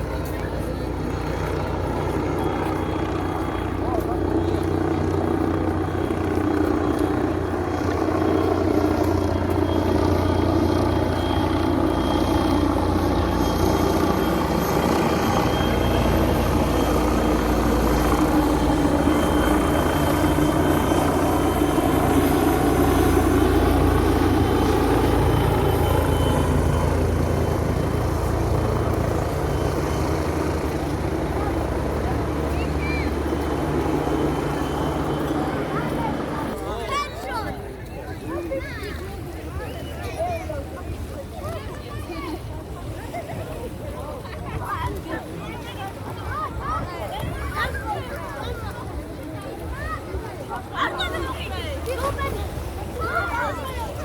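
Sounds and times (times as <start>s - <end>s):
engine drone: 0.0s - 36.8s.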